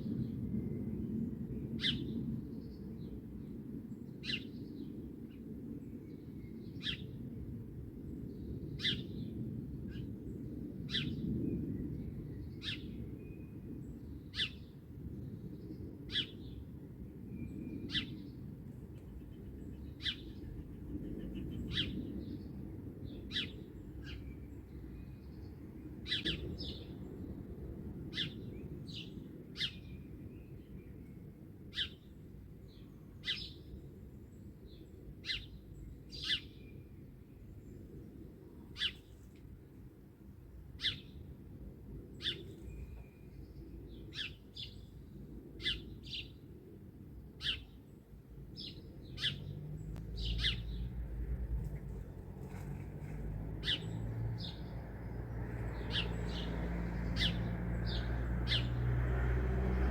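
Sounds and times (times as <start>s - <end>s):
steady low rumble: 49.0s - 58.0s.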